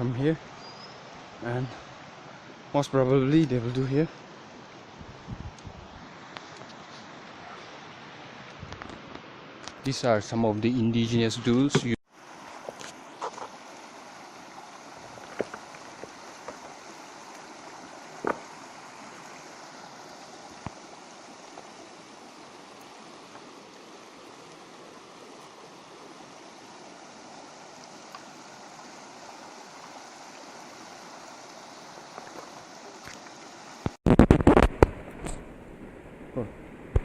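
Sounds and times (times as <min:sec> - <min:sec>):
river water rushing: 0:12.1 - 0:34.0
loud crackling burst: 0:33.8 - 0:35.3.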